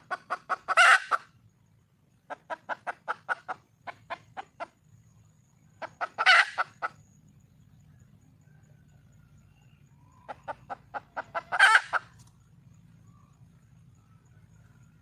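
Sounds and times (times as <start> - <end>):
hen clucking: 0.0 - 1.4, 2.3 - 4.8, 5.8 - 7.1, 10.1 - 12.3.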